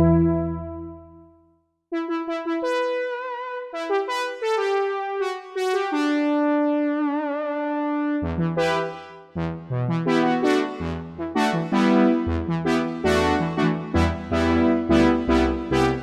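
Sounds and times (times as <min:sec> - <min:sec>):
synthesizer chords: 0:00.0 - 0:01.2, 0:08.2 - 0:16.0
synthesizer melody with vibrato: 0:00.0 - 0:01.2, 0:08.2 - 0:16.0.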